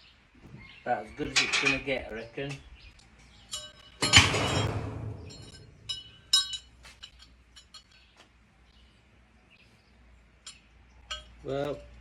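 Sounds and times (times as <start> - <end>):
metal brackets clinking: 1.3 - 2.1, 3.2 - 8.2, 10.4 - 12.0.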